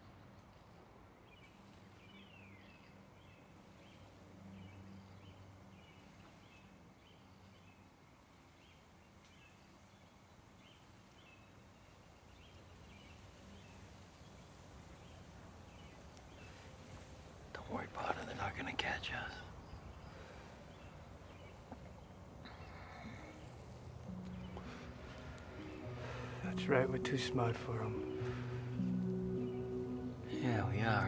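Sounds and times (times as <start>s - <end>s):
bird chirping: 17.6s - 31.0s
low steady hum: 19.2s - 31.0s.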